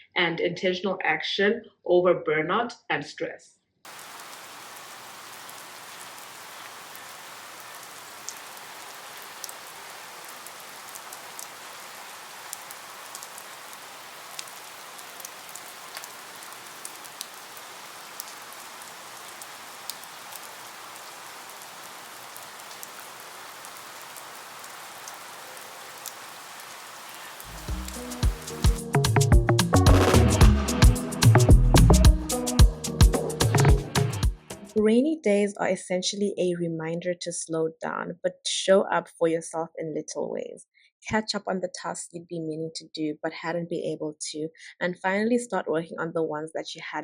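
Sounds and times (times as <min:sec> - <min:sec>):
steady rain falling: 0:03.9 - 0:29.2.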